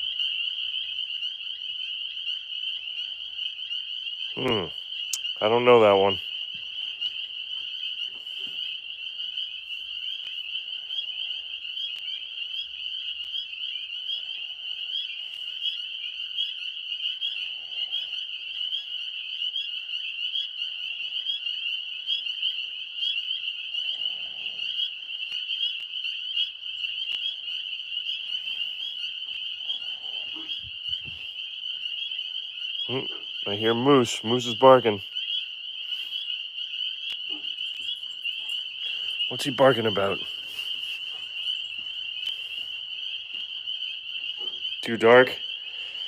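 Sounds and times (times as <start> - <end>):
tree frogs calling: 0.0 - 46.0.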